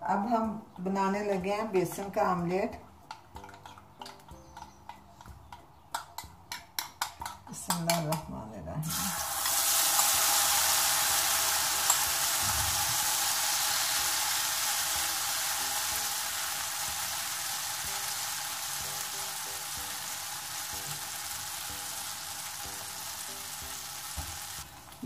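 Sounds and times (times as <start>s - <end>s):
batter sizzling in hot oil: 8.8s - 25.0s.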